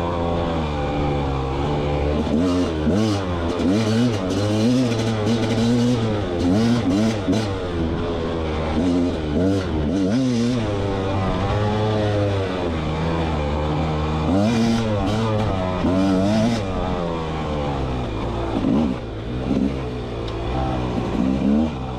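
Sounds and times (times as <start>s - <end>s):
dirt bike engine revving: 0.0s - 21.9s
clatter: 1.8s - 10.6s, 18.0s - 21.9s.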